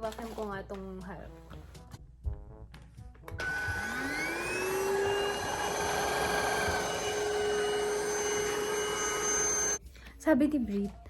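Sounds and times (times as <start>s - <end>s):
vacuum cleaner motor whining: 3.4s - 9.8s.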